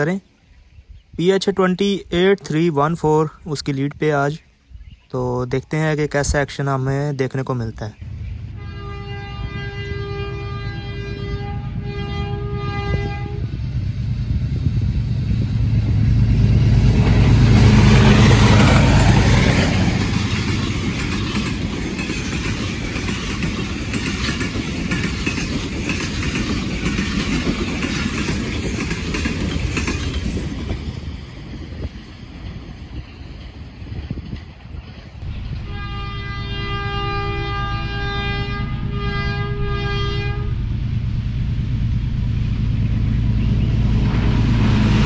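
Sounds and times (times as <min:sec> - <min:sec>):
diesel locomotive engine: 0:05.1 - 0:45.0
train horn blasts: 0:08.4 - 0:13.6, 0:17.4 - 0:19.0, 0:35.6 - 0:40.8
wheels clattering on rails: 0:18.5 - 0:35.6.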